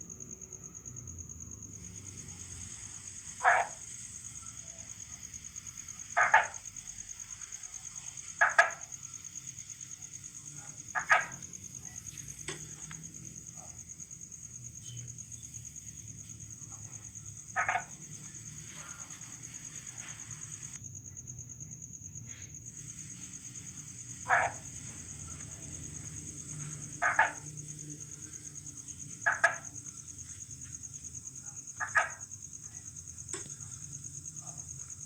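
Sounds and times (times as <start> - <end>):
crickets trilling: 0.0 - 35.0
frog calling: 2.3 - 13.8, 16.6 - 20.8, 23.5 - 30.3, 31.4 - 33.5.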